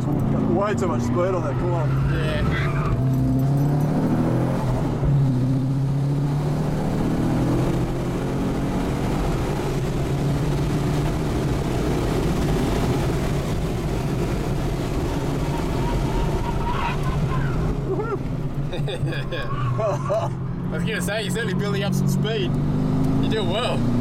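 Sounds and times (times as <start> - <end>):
car engine accelerating: 0.0 - 24.0
road and wind noise: 0.0 - 24.0.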